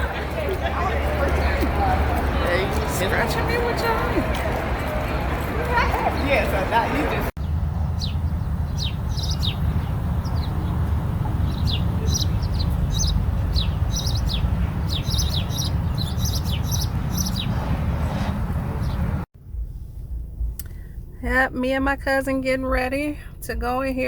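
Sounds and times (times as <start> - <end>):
steady low rumble: 7.1 - 24.0
small birds chirping: 7.4 - 17.6, 18.8 - 19.1.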